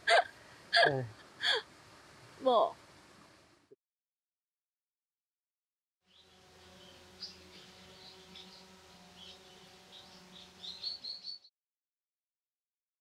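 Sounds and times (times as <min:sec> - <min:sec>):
faint steady hum: 0:00.0 - 0:03.7
faint bird chirps: 0:06.1 - 0:11.5.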